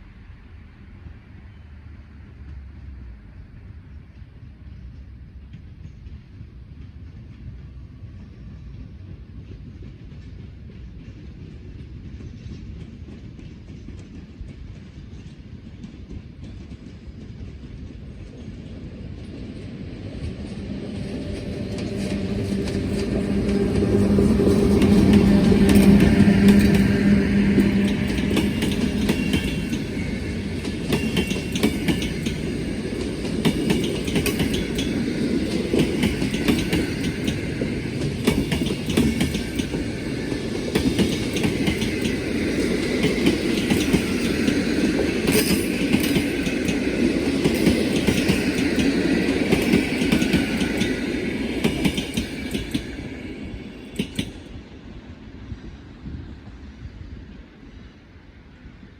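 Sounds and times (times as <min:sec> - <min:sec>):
train rumbling past: 0:00.0 - 0:58.9
wheels clicking over rail joints: 0:20.3 - 0:53.2.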